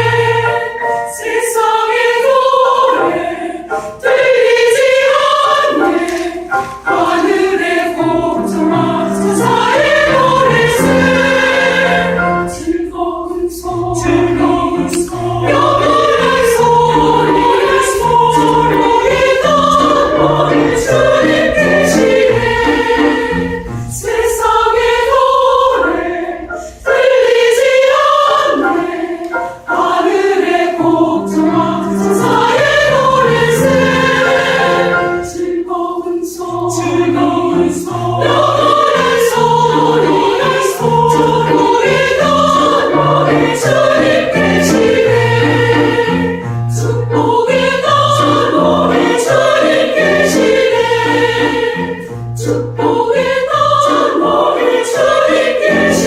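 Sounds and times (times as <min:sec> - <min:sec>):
church choir singing: 0:00.0 - 0:56.0
sustained low accompaniment notes: 0:08.0 - 0:26.4.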